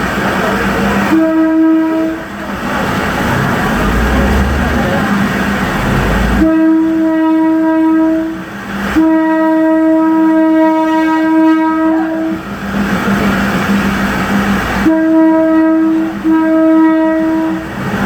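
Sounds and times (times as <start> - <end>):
train rumbling along tracks: 0.0 - 18.0
train horn blasts: 1.0 - 2.4, 3.0 - 12.4, 14.8 - 17.7.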